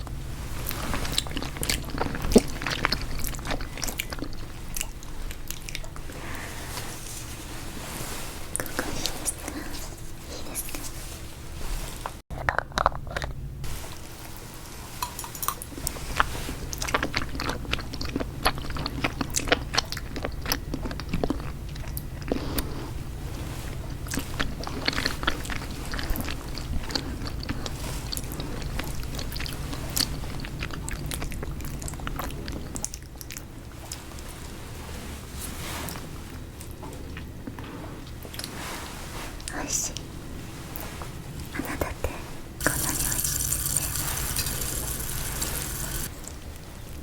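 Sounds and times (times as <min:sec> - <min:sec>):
close-miked chewing and biting: 0:00.0 - 0:06.4, 0:15.0 - 0:34.4.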